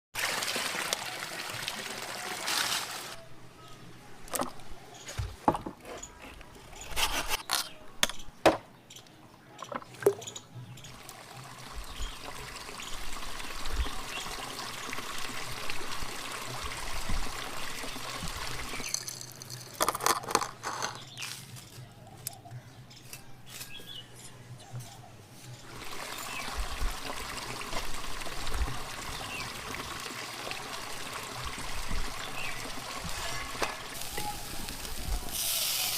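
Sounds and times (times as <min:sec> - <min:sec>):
water trickling and pouring: 0:00.2 - 0:03.2, 0:10.0 - 0:21.0, 0:25.6 - 0:35.9
steady hiss: 0:34.0 - 0:35.9.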